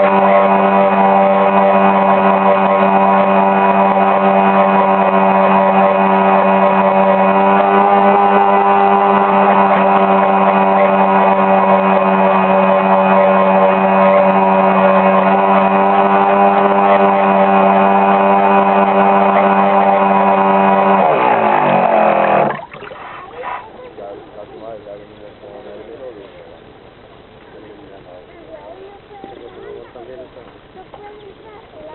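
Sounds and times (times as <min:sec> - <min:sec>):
motor boat engine running: 0:00.0 - 0:31.9.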